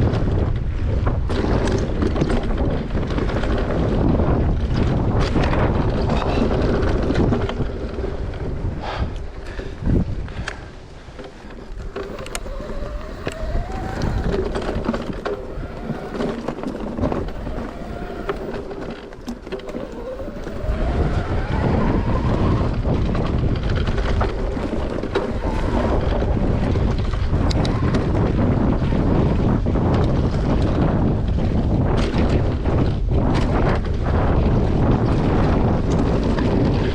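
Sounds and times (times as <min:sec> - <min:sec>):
bike clicks and rattles: 0:00.0 - 0:36.9
tyre noise: 0:00.0 - 0:36.9
wind buffeting microphone: 0:00.0 - 0:36.9
electric bike motor whining: 0:11.6 - 0:32.8.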